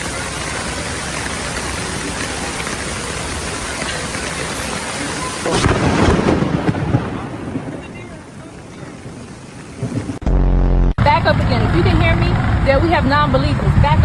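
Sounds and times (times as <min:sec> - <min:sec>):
rushing hiss like rain: 0:00.0 - 0:10.2
thunder rumble: 0:00.0 - 0:14.0.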